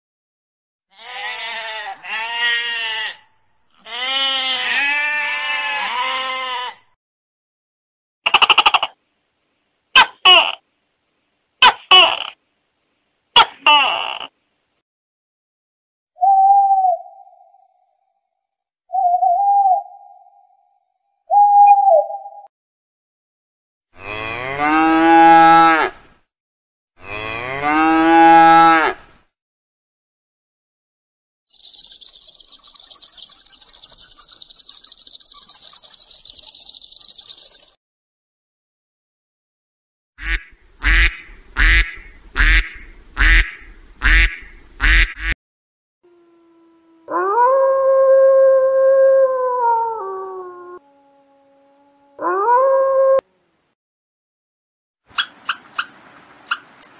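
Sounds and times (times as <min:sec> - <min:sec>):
short whistle-like hoots: 0:16.2 - 0:17.2
cow mooing: 0:27.0 - 0:29.0
animal calling: 0:31.5 - 0:37.8.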